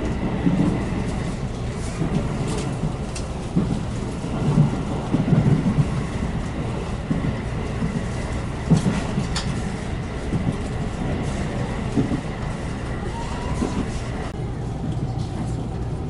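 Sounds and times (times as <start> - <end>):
train rumble inside passenger car: 0.0 - 16.0.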